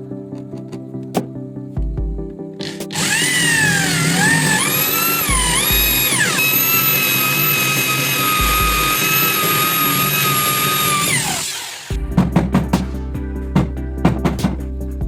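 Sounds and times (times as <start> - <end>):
background music: 0.0 - 15.0
music beat: 1.2 - 6.3, 7.4 - 9.2, 11.9 - 15.0
electric power tool motor whining: 2.6 - 12.0.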